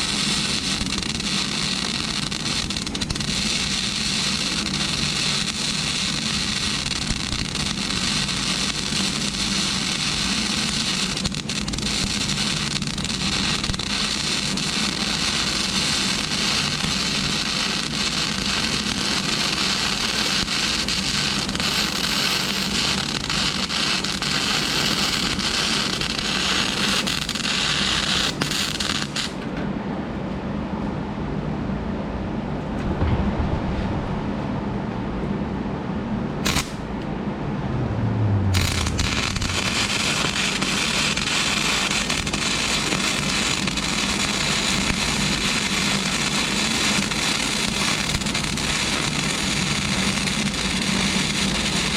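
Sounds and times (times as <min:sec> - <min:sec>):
welder arc crackling: 0:00.0 - 0:29.4, 0:36.4 - 0:37.0, 0:38.4 - 0:51.9
steady low hum: 0:29.3 - 0:50.3.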